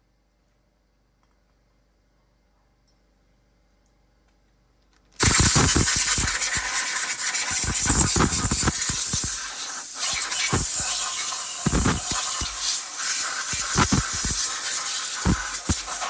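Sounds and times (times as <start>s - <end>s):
compressed air hissing from blow gun: 5.2s - 16.0s.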